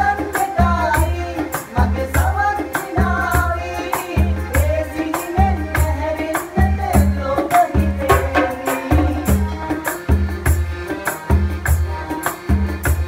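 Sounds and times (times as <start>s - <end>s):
pop song with singing: 0.0s - 9.4s
light hand percussion: 0.0s - 13.0s.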